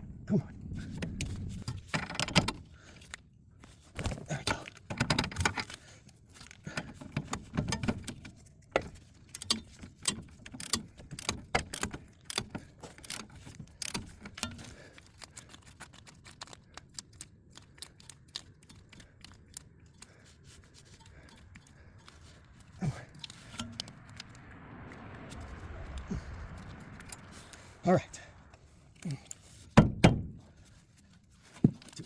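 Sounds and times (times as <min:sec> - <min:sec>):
metal tools clinking and rattling: 0:04.0 - 0:24.3.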